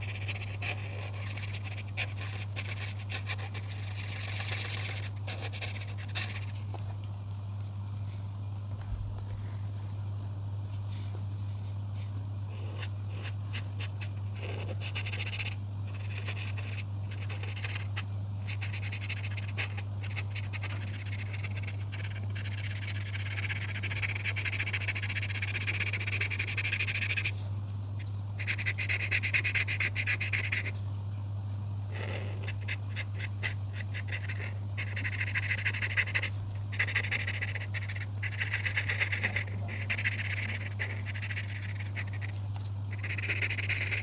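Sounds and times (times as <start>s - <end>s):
coloring strokes scratching on paper: 0.0s - 6.9s, 12.0s - 27.3s, 32.0s - 44.0s
steady low hum: 0.0s - 44.0s.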